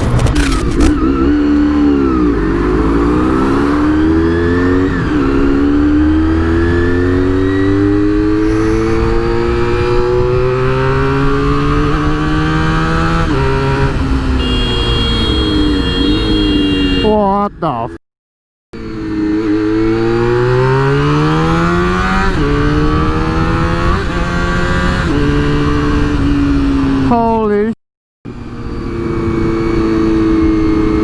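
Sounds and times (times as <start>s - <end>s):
motorcycle engine accelerating: 0.0s - 14.3s.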